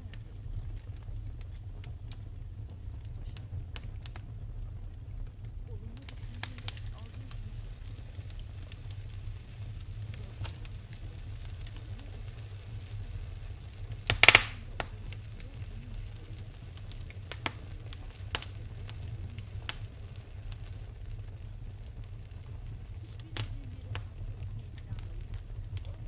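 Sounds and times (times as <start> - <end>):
wood fire crackling: 0.0 - 26.0
loud hissing pop: 11.6 - 19.8.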